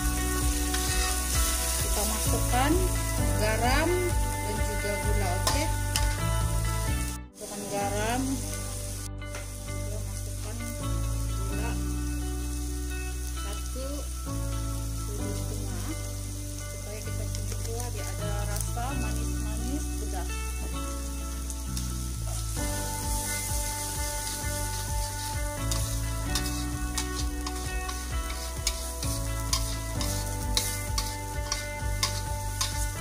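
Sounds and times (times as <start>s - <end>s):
spatula stirring in wok: 0.0s - 3.2s, 23.5s - 33.0s
background music with held chords: 0.0s - 33.0s
paste sizzling in oil: 0.0s - 33.0s.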